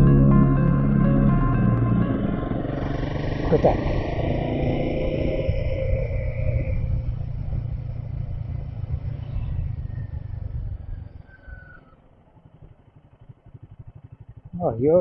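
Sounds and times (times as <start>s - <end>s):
wind rumble: 0.0s - 11.8s
motorcycle engine: 0.0s - 15.0s.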